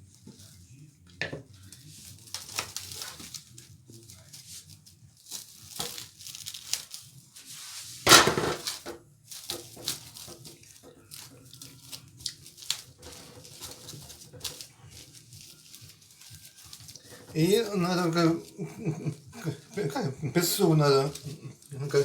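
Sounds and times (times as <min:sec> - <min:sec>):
dishes clattering: 0:01.2 - 0:01.5, 0:08.1 - 0:11.3
packaging crinkling and rustling: 0:01.5 - 0:22.0.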